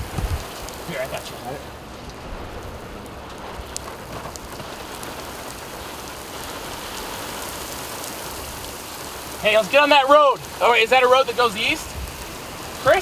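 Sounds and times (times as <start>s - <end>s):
heavy rain and wind: 0.0s - 13.0s
raindrop impacts: 0.0s - 13.0s.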